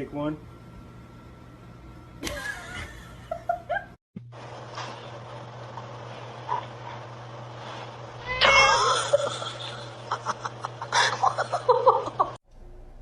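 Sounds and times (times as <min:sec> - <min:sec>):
low hum: 0:00.0 - 0:13.0
cat yowling: 0:08.2 - 0:09.2.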